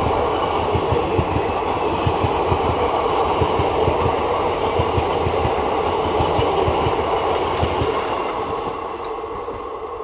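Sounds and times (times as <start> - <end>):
clickety-clack over rail joints: 0.0 - 9.8
train wheels rumbling on rails: 0.0 - 10.0.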